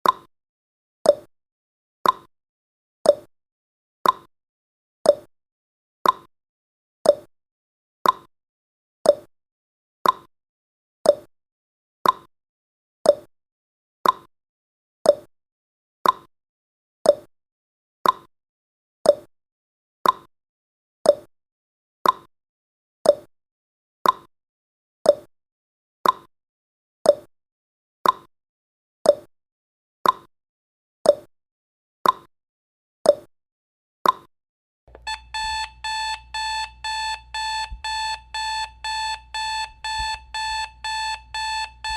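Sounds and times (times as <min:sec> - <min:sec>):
countdown timer ticking: 0:34.9 - 0:41.9.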